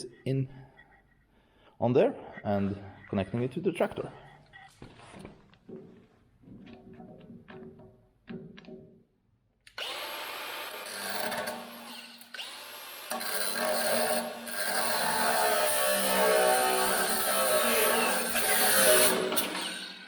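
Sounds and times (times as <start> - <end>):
power tool whining: 9.7 - 20.0.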